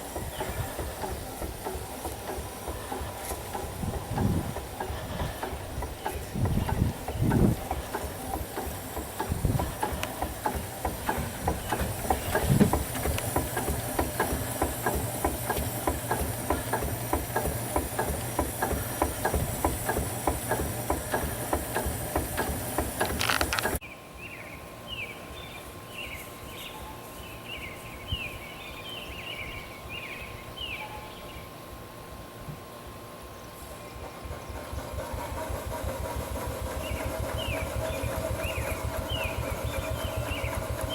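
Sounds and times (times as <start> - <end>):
steam engine beating rhythmically: 0.0 - 23.8, 33.0 - 40.9
steam hissing: 0.0 - 23.8, 33.5 - 40.9.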